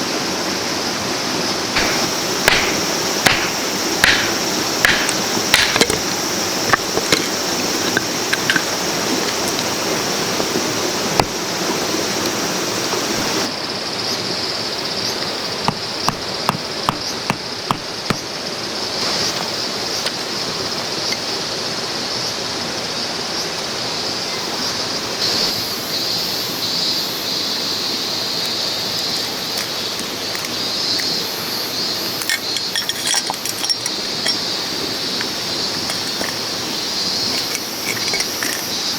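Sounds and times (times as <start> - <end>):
shallow river flowing: 0.0 - 13.5
high hiss: 1.6 - 13.5.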